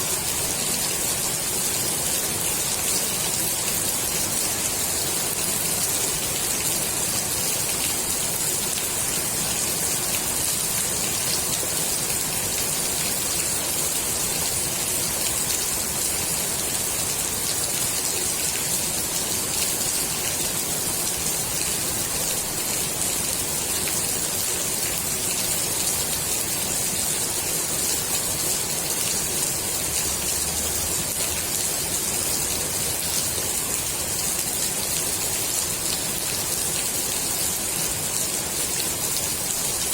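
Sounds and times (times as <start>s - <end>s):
rain falling on pool water: 0.0s - 39.9s.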